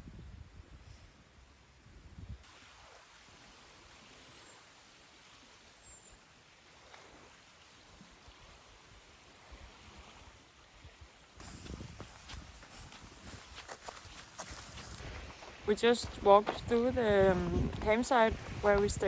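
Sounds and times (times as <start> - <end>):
faint outdoor hiss: 10.5 - 19.0
soft low thumps: 11.4 - 19.0.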